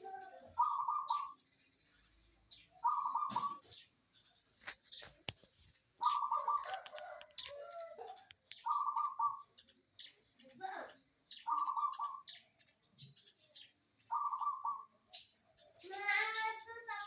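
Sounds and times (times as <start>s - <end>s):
dove cooing: 0.0s - 1.4s, 2.8s - 3.8s, 6.0s - 9.5s, 11.5s - 12.4s, 14.1s - 15.0s
sharp clicks: 4.6s - 7.6s.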